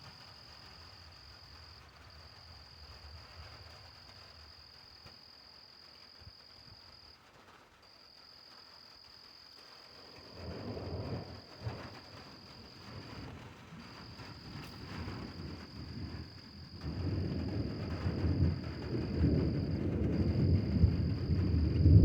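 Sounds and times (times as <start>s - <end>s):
light rain hiss: 0.0s - 22.0s
thunder rumbling: 10.0s - 22.0s.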